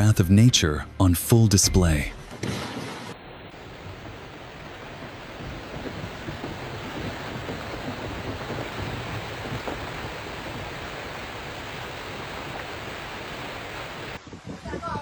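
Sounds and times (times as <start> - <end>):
hail and rain falling: 3.5 - 14.2.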